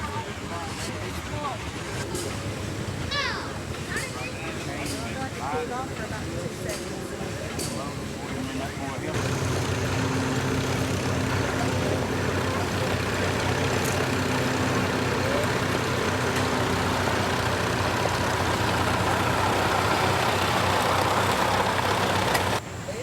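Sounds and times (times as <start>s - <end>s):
engine humming: 9.1s - 22.6s.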